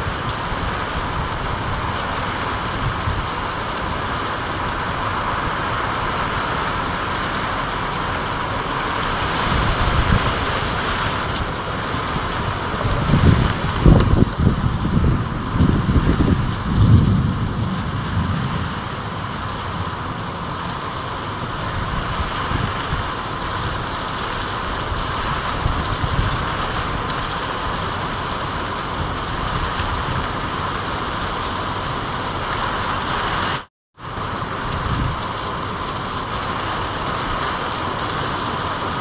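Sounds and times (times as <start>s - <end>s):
steady rain hiss: 0.0s - 39.0s.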